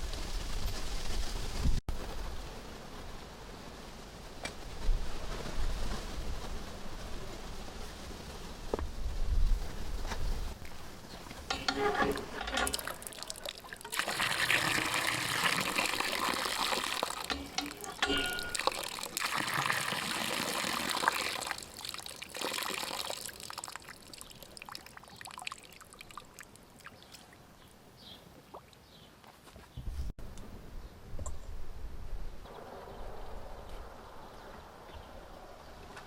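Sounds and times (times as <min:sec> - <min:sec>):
water running and pouring: 0:11.4 - 0:27.2.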